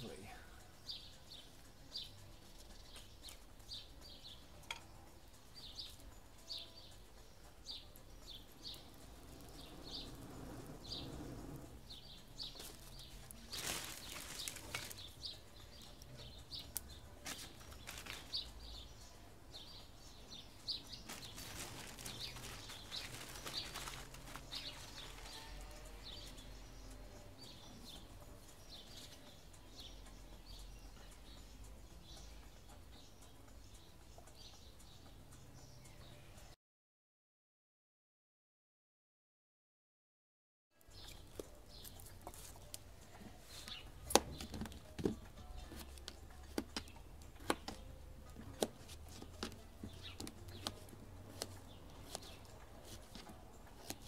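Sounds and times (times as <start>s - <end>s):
small bird chirping: 0.0s - 36.6s
rustling handling noise: 12.6s - 15.4s, 17.2s - 18.5s, 20.8s - 25.6s.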